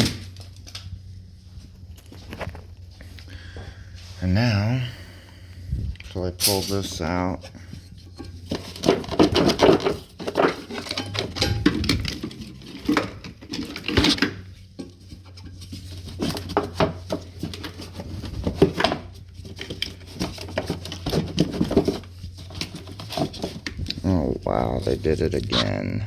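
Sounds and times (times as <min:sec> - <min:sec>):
low hum: 0:00.0 - 0:20.5
plastic and metal parts rattling: 0:06.0 - 0:25.2.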